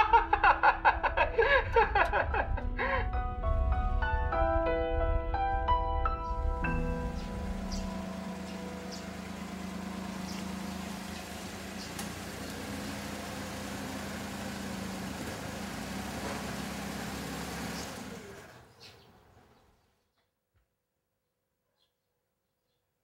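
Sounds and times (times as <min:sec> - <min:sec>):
small car engine humming: 0:06.3 - 0:19.6.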